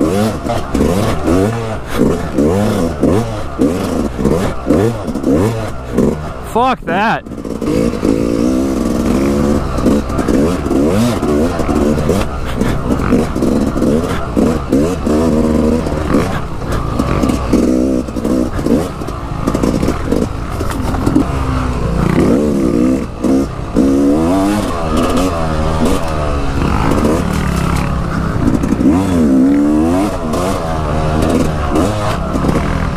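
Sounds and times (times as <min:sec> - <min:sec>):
dirt bike engine revving: 0:00.0 - 0:32.9
bike clattering over bumps: 0:07.4 - 0:24.0.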